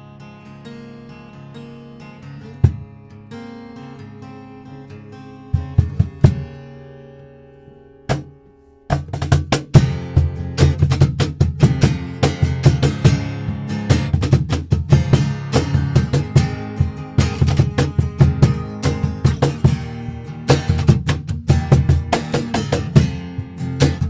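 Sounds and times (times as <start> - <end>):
acoustic guitar chord ringing: 0.0 - 9.0, 14.9 - 24.0
acoustic guitar strumming: 0.0 - 24.0
percussion beat: 5.5 - 6.6, 8.9 - 24.0.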